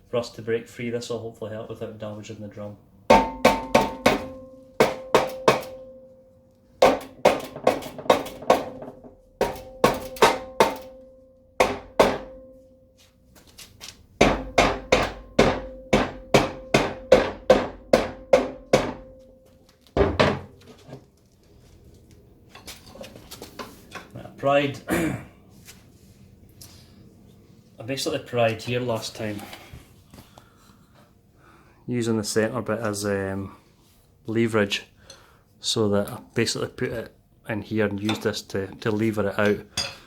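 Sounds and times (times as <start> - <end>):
rubber mallet tapping steel drum: 3.1 - 6.2, 6.8 - 12.7
steel drum ringing: 3.1 - 6.3, 6.9 - 13.0.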